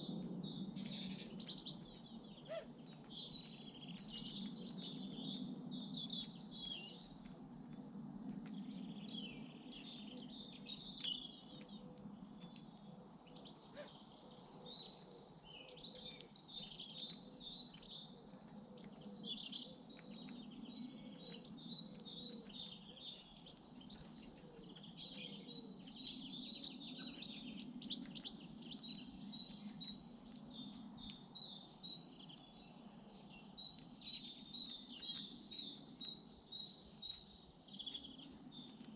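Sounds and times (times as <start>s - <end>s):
birds singing and chirping: 0.0s - 38.9s.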